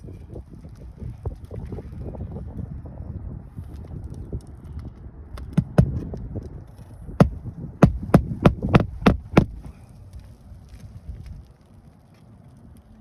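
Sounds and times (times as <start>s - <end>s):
hammer striking roofing nails: 5.4s - 6.1s, 7.2s - 9.8s.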